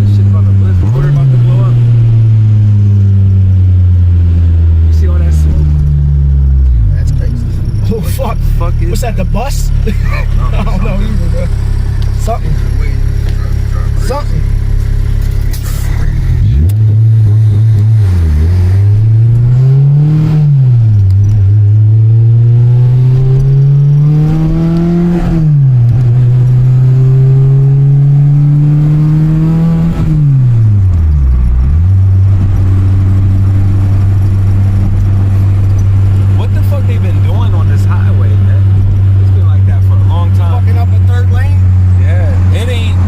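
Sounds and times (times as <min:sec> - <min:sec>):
car engine revving through gears: 0:00.0 - 0:43.0.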